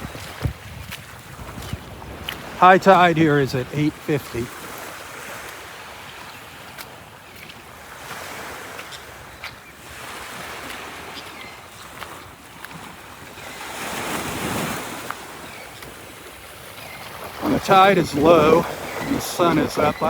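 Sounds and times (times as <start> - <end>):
wind buffeting microphone: 0.0 - 5.4
surf washing up on beach: 0.0 - 20.0.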